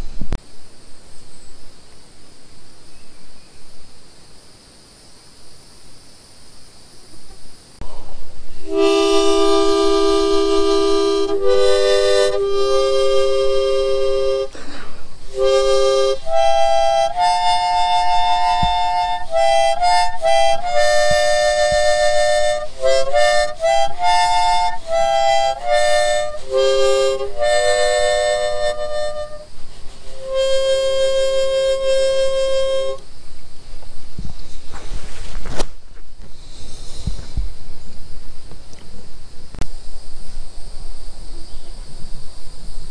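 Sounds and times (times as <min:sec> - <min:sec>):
harmonica chords: 0:08.6 - 0:33.0.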